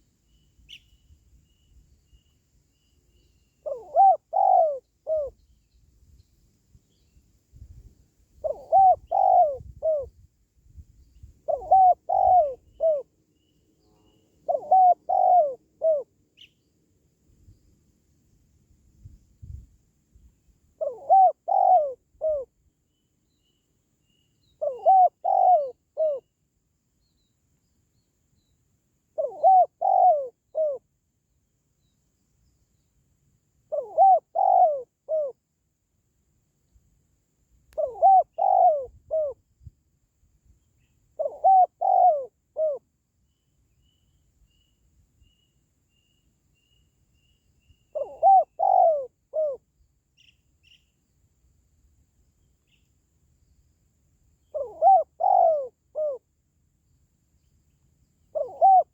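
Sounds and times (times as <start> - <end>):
dove cooing: 3.6 - 5.4, 8.4 - 10.1, 11.4 - 13.1, 14.4 - 16.5, 20.8 - 22.5, 24.6 - 26.3, 29.2 - 30.8, 33.7 - 35.4, 37.8 - 39.4, 41.2 - 42.8, 47.9 - 49.6, 54.4 - 56.2, 58.3 - 58.9.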